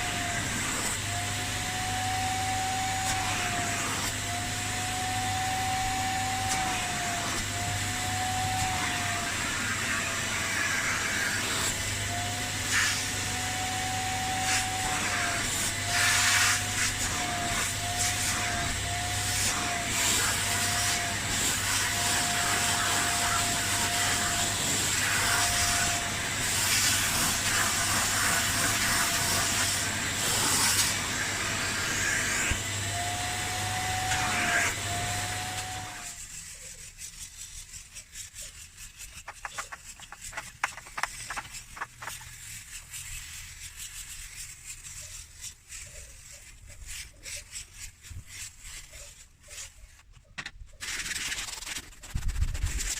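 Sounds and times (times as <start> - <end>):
clicks and scraping: 38.2 - 44.3, 45.7 - 52.9.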